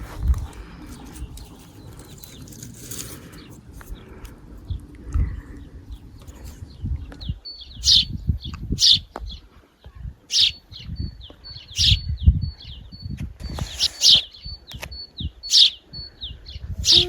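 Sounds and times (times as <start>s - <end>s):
songbirds chirping: 0.0s - 17.0s
sharp bird calls: 7.4s - 9.1s, 10.3s - 12.8s, 13.4s - 17.0s.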